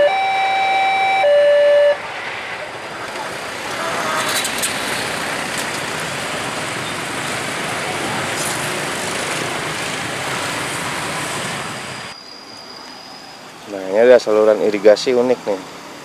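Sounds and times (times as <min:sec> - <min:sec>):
train wheels rumbling on rails: 0:02.0 - 0:12.1.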